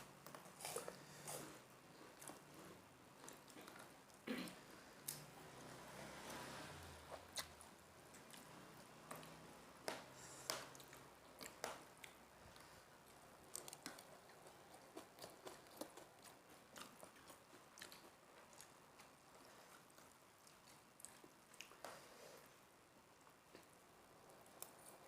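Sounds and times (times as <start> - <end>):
chewing crunchy crackers: 0.2 - 5.2, 10.2 - 22.0.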